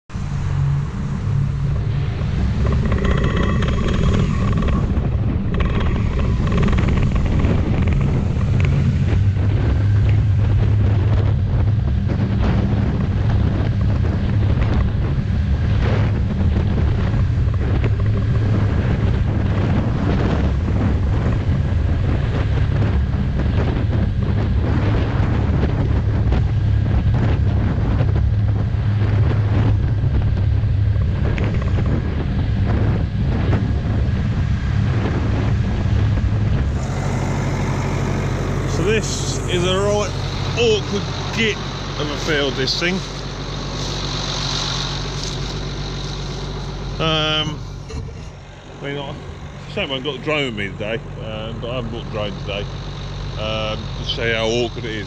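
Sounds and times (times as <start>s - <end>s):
tractor diesel engine running: 0.1s - 55.0s
brief higher whine: 36.6s - 50.2s.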